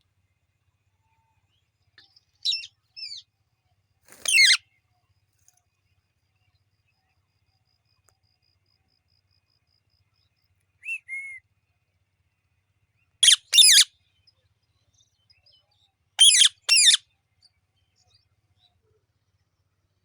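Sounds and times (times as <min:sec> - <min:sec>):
parrot shrill calls: 0:02.4 - 0:03.2, 0:04.2 - 0:04.6, 0:13.2 - 0:13.9, 0:16.2 - 0:17.0
parrot whistling: 0:13.2 - 0:13.8, 0:16.2 - 0:17.0.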